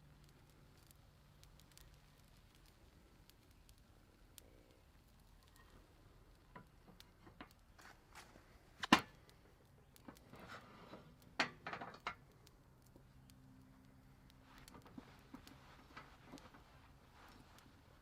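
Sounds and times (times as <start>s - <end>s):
cooking gear knocks and clicks: 10.0s - 12.2s.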